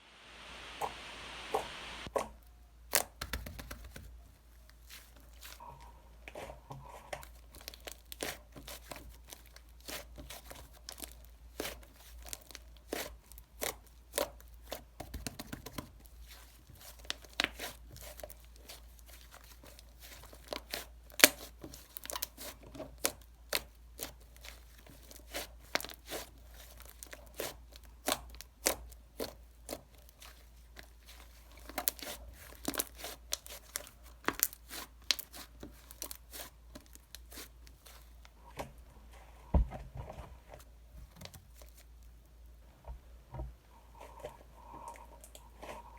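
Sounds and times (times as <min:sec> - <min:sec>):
wrapper crinkling and tearing: 0:29.7 - 0:38.2.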